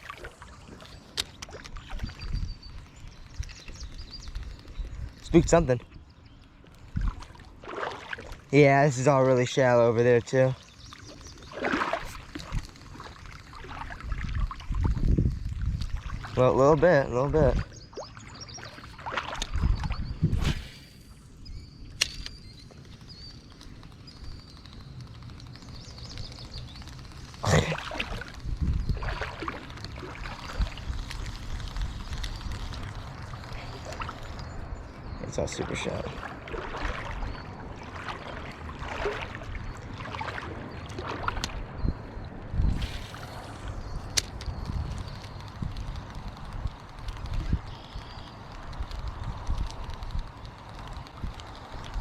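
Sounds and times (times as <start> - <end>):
small birds chirping: 0.1 - 52.0
creek noise: 6.8 - 15.2, 23.4 - 42.1, 42.7 - 52.0
fishing rod swish: 20.3 - 21.1
sharp click: 21.9 - 22.8, 42.8 - 46.0.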